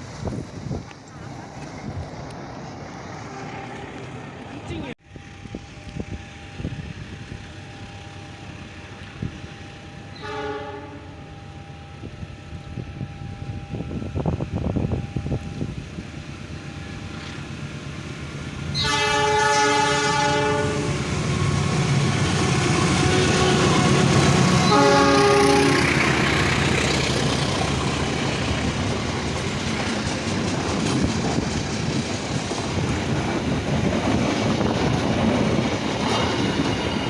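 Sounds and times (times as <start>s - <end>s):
train rumble: 0.0s - 37.0s
locomotive horn blasts: 10.1s - 11.3s, 18.7s - 26.0s.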